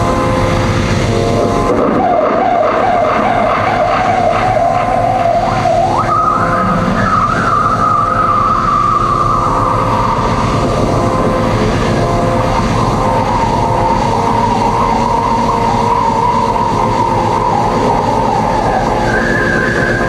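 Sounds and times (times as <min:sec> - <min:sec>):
droning electronic noise music: 0:00.0 - 0:20.0
whining tone sliding in pitch: 0:00.0 - 0:20.0.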